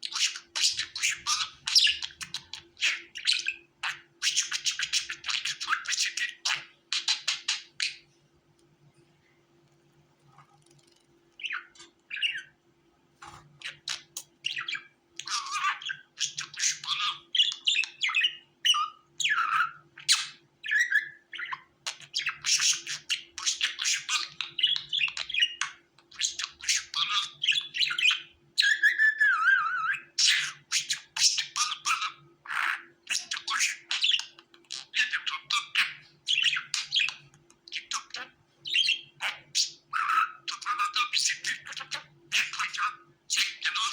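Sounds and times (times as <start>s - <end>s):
faint steady hum: 0.0s - 43.9s
budgerigars chattering: 13.6s - 29.0s, 30.0s - 43.9s.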